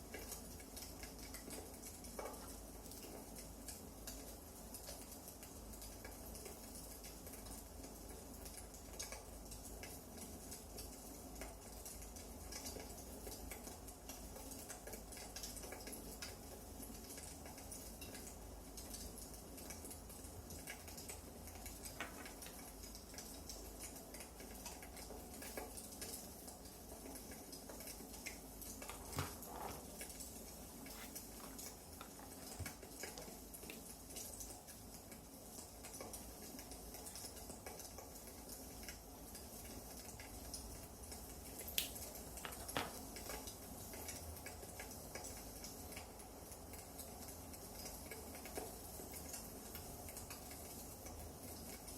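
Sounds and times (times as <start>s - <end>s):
firewood crackling: 28.7s - 33.8s.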